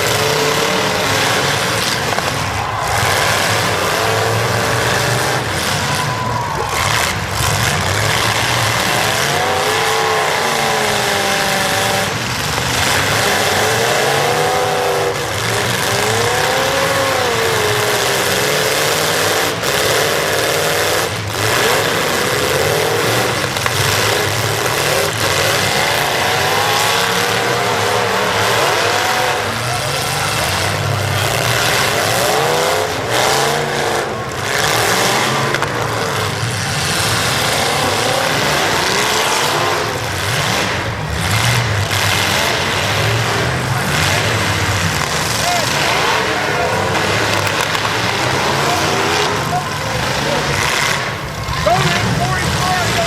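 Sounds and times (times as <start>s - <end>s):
car engines revving: 0.0s - 53.0s
cars colliding bangs: 0.0s - 53.0s.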